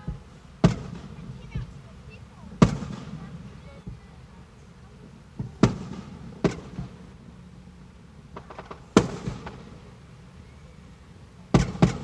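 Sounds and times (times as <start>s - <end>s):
fireworks bangs: 0.0s - 1.8s, 2.4s - 4.2s, 5.3s - 7.2s, 8.2s - 10.4s, 11.5s - 12.0s
fireworks crackling pops: 0.0s - 1.9s, 2.5s - 4.3s, 5.3s - 7.2s, 8.2s - 10.4s, 11.5s - 12.0s.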